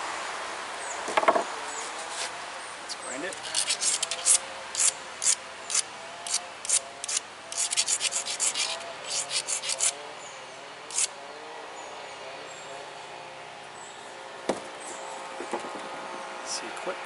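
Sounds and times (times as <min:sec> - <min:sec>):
stone scraping flake edge: 0:03.4 - 0:09.9.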